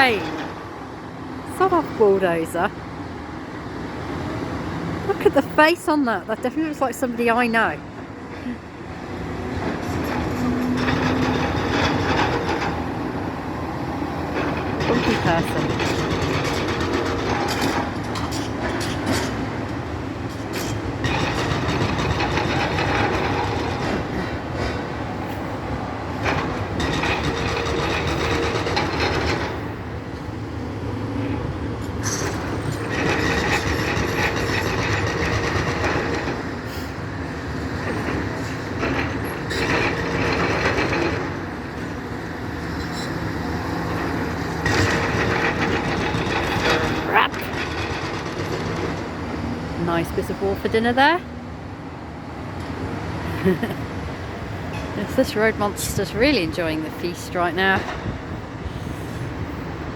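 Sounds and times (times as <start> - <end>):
engine and hydraulic drone: 0.0 - 59.9
masonry crunching and clattering: 44.6 - 49.2.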